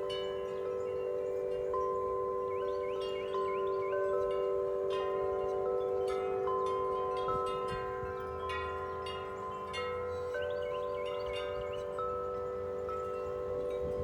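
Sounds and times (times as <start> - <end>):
deep wind chimes ringing: 0.0 - 14.0
strong wind: 12.4 - 14.0.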